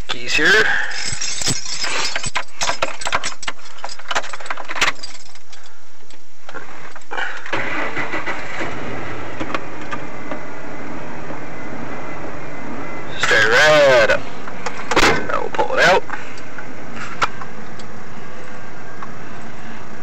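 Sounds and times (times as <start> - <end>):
keys jangling: 0.7 - 5.7
truck engine cranking and starting: 7.1 - 13.0
truck engine idling: 7.6 - 20.0.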